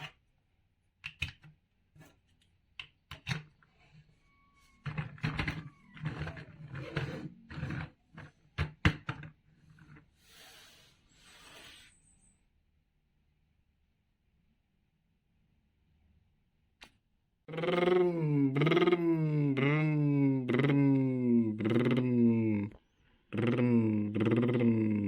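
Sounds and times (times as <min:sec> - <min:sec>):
plastic blocks clicking and knocking: 0:01.0 - 0:02.2, 0:02.8 - 0:03.6.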